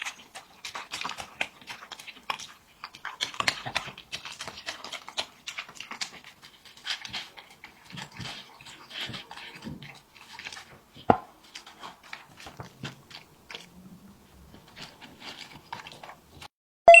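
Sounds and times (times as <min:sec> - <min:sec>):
dog chewing and crunching food: 0:00.0 - 0:16.5.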